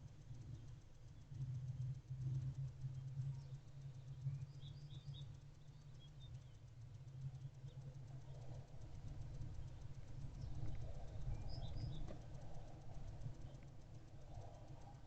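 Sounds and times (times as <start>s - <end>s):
steady low hum: 0.0s - 15.0s
faint high bird chirps: 2.9s - 6.7s, 9.5s - 14.4s.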